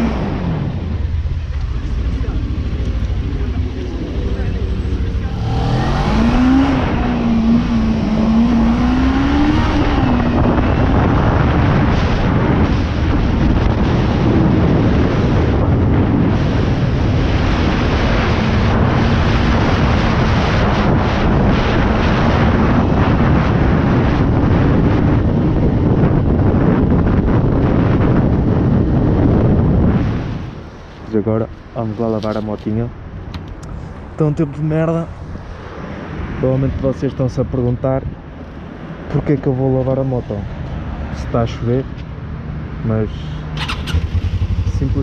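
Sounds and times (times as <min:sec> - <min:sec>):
wind noise on microphone: 0:00.0 - 0:45.0
motorcycle engine running: 0:01.4 - 0:08.7, 0:43.6 - 0:45.0.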